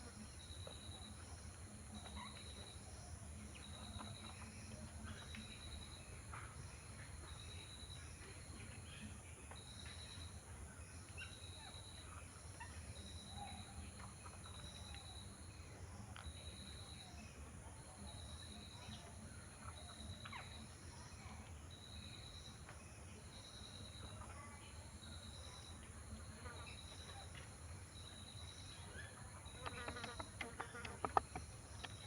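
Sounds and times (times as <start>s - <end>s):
insect chirping in trills: 26.5s - 32.0s
sharp clicks and taps: 29.7s - 32.0s.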